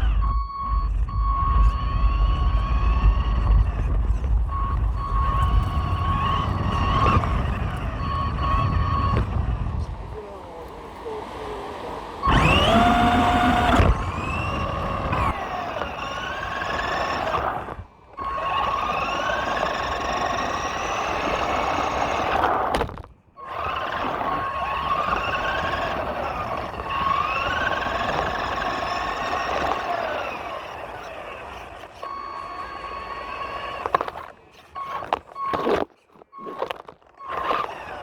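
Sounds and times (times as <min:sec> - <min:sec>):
electric motor whining: 0:00.0 - 0:38.0.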